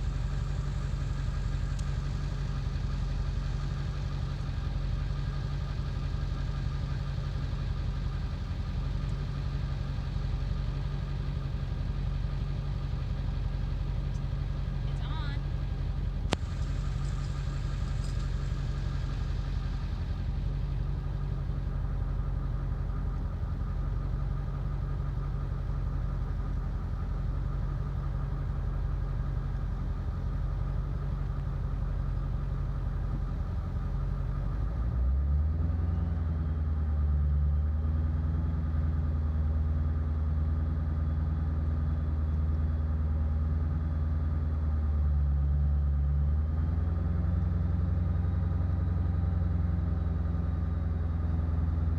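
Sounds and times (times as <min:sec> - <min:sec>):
diesel engine idling rough: 0:00.0 - 0:51.9.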